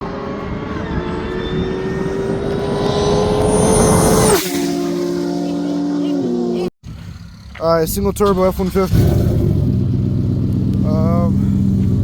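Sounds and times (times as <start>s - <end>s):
high turbo whistle: 0.0s - 6.7s
car engine at full throttle: 0.0s - 7.6s, 8.6s - 12.0s.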